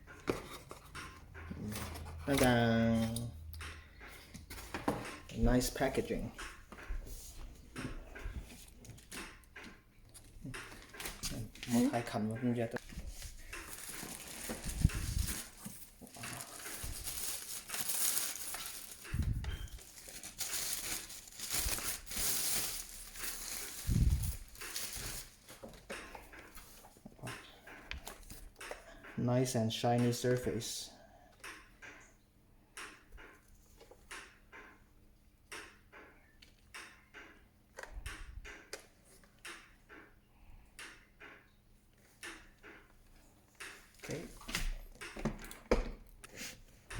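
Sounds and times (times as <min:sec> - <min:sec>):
plastic packaging crinkling: 0:12.7 - 0:25.8.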